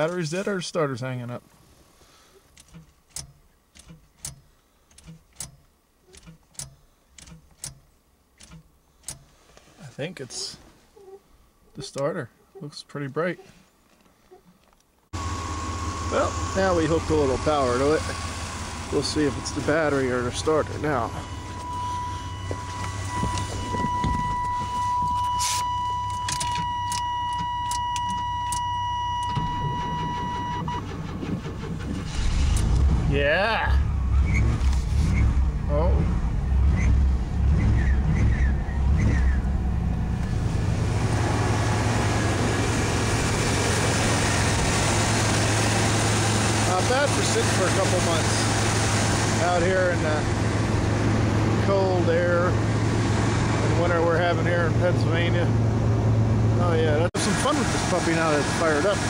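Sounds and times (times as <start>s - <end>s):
starter solenoid clicking: 2.5s - 9.3s
starter motor cranking engine: 27.7s - 33.0s.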